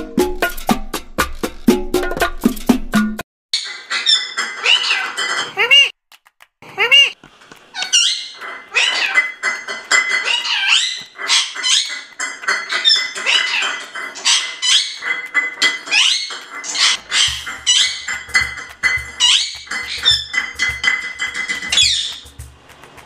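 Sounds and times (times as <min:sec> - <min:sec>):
parrot chirping and squeaking: 0:03.6 - 0:05.9, 0:06.8 - 0:22.4
parrot clicks: 0:07.5 - 0:23.0.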